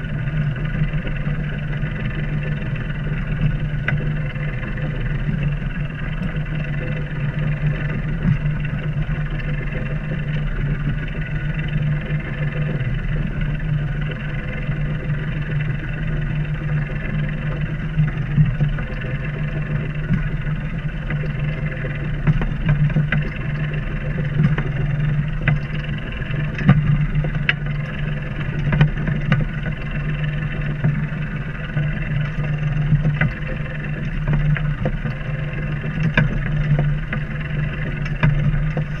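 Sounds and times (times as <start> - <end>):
boat engine droning: 0.0 - 39.0
faint ticks: 0.3 - 39.0.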